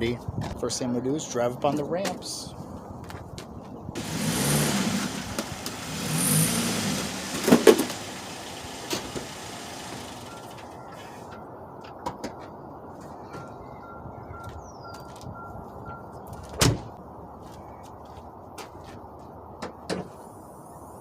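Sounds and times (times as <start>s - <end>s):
car engine revving: 4.0s - 10.6s.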